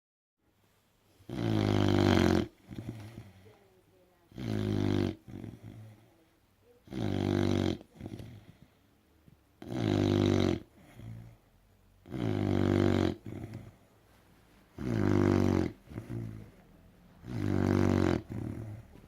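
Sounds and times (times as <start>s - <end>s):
dog snoring loudly: 1.3s - 3.4s, 4.3s - 6.0s, 6.8s - 8.6s, 9.6s - 13.8s, 14.8s - 16.6s, 17.2s - 19.0s
dog breathing raggedly: 14.8s - 16.6s.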